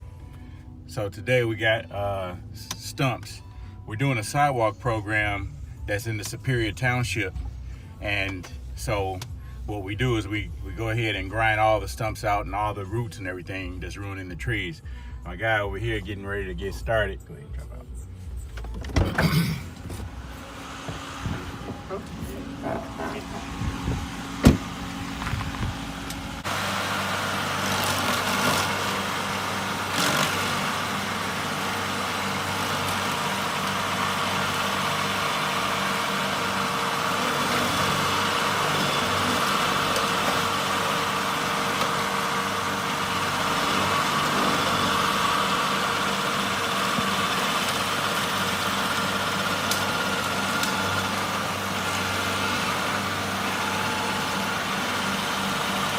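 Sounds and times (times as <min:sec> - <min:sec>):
stump grinder engine running: 0:20.2 - 0:55.9.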